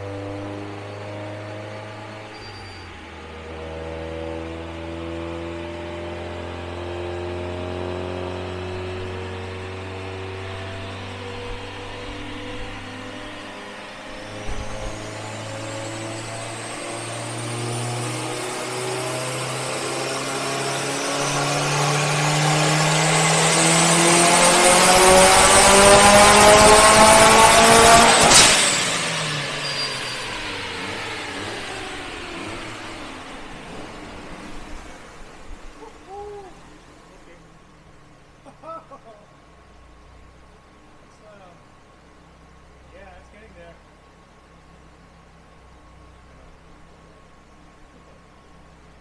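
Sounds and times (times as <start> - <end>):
car engine revving on dyno: 0.0 - 35.8
turbo whistle: 2.2 - 3.1, 29.4 - 31.0
dyno rollers winding down: 7.3 - 37.6.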